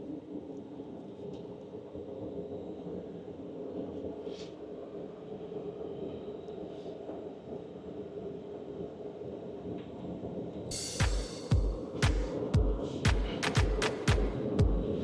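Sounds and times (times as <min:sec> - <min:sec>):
music: 0:10.7 - 0:15.0.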